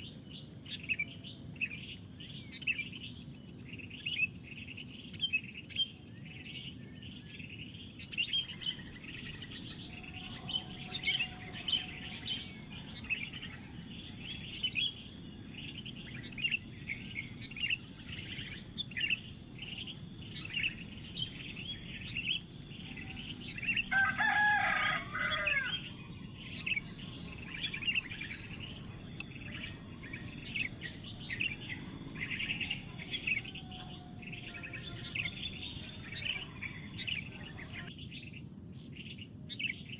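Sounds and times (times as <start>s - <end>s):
high insect buzz: 0.0s - 37.9s
small bird chirping: 0.0s - 39.9s
rooster crowing: 8.4s - 14.3s, 22.9s - 26.1s, 31.1s - 34.8s.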